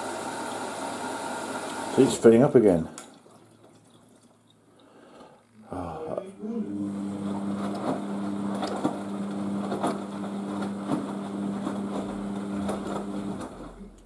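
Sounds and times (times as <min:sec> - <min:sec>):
washing machine filling: 0:00.0 - 0:02.4, 0:06.7 - 0:13.9.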